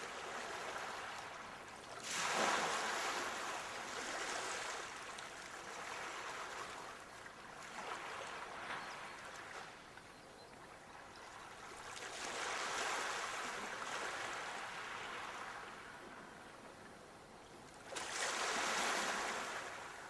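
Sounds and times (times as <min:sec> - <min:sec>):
sea waves washing on shore: 0:00.0 - 0:10.0, 0:10.8 - 0:16.4, 0:17.7 - 0:20.0.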